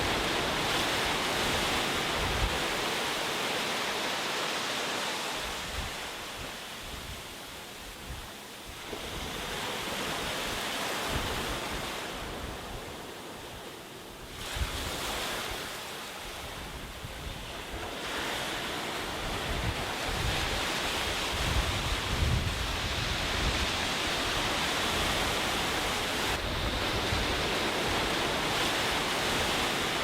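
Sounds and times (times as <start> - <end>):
wind buffeting microphone: 0.0 - 2.9, 16.4 - 30.0
sea waves breaking on a beach: 0.0 - 30.0.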